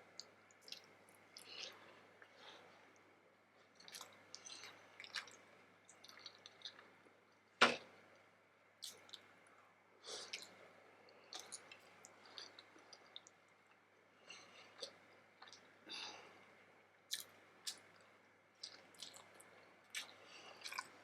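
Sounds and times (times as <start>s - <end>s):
wet chewing and lip-smacking: 0.2s - 2.3s, 3.7s - 7.0s, 8.8s - 9.3s, 11.3s - 13.8s, 14.8s - 15.7s, 17.1s - 21.0s.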